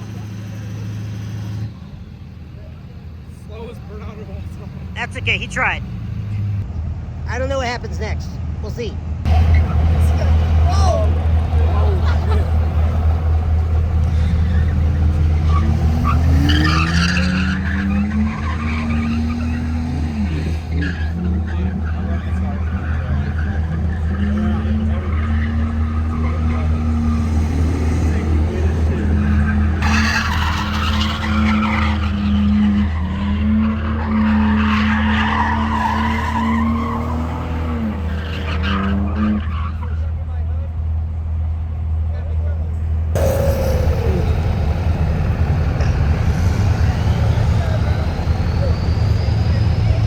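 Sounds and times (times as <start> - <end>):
truck engine revving: 0.0 - 7.5, 9.2 - 40.1, 42.7 - 50.0
tyres squealing: 13.9 - 40.1, 43.2 - 50.0
low rumble: 43.1 - 50.0.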